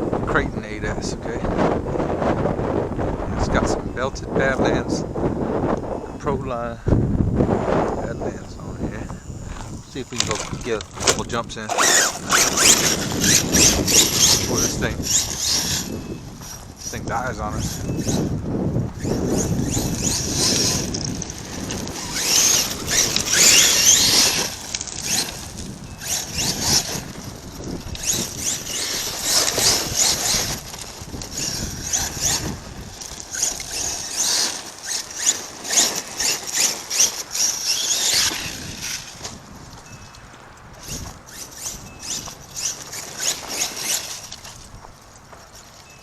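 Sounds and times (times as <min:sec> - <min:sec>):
tyres on loose ground: 0:00.0 - 0:46.0
electric motor whine: 0:07.4 - 0:39.4, 0:40.8 - 0:44.7.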